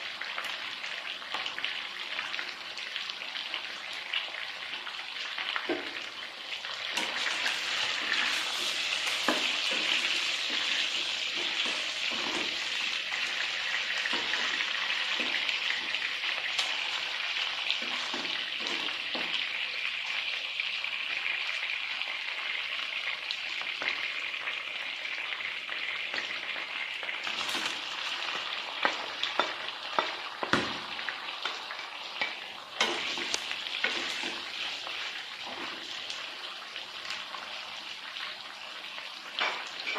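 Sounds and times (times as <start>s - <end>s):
food sizzling in a frying pan: 0.0s - 39.9s
utensil knocking against pan: 28.8s - 30.9s.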